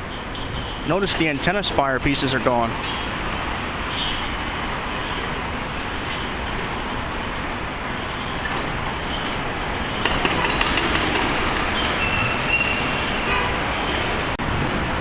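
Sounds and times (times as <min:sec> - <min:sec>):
city traffic: 0:00.0 - 0:15.0
knocks and clanks: 0:10.0 - 0:12.0.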